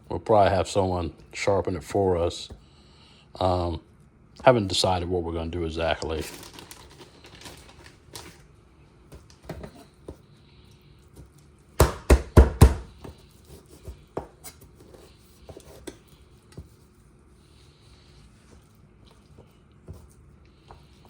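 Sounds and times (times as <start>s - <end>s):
knife chopping meat: 11.8s - 14.4s.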